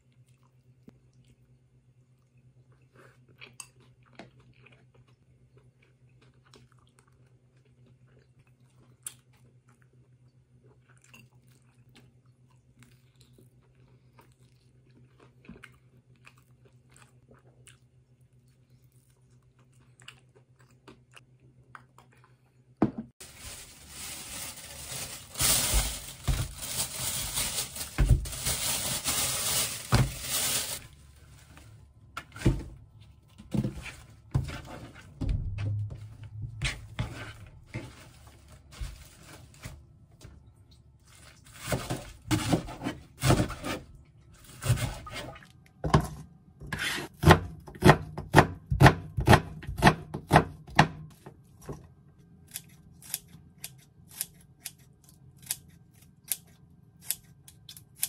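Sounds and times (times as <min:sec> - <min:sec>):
chewing and crunching: 0:00.0 - 0:22.8
loud rustling of chives: 0:23.2 - 0:31.8.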